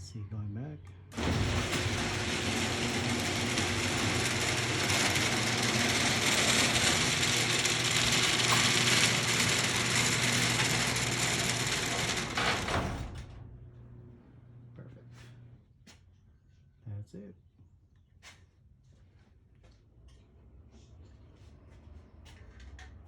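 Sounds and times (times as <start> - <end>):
garage door opener running: 1.1 - 14.3.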